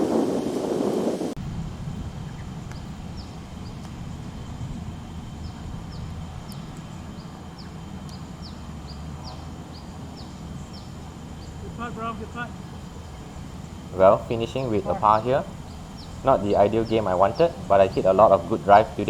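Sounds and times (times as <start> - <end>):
low steady rumble: 1.4 - 19.0
bird chirping: 5.3 - 19.0.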